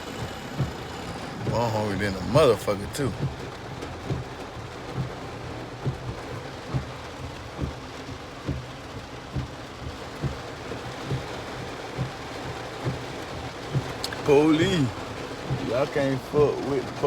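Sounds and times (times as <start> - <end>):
heavy rain falling: 0.0 - 17.0
bass drum beat: 1.4 - 11.4.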